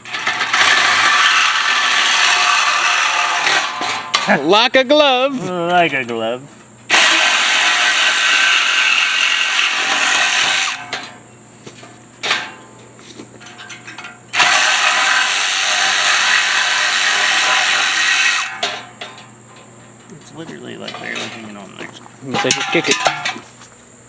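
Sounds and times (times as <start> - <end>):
power saw cutting steel pipe: 0.0 - 4.4, 6.9 - 11.2, 13.7 - 19.2, 22.2 - 23.4.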